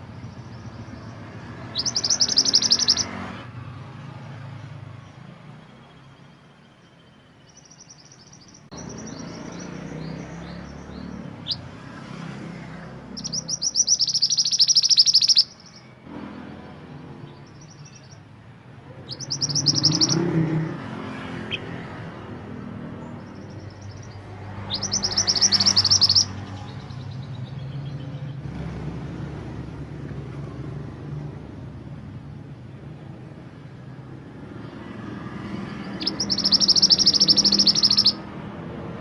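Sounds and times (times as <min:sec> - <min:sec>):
songbird high chirps: 0:00.0 - 0:03.2, 0:05.0 - 0:11.9, 0:13.1 - 0:16.0, 0:17.2 - 0:20.7, 0:21.4 - 0:28.4, 0:34.6 - 0:38.4.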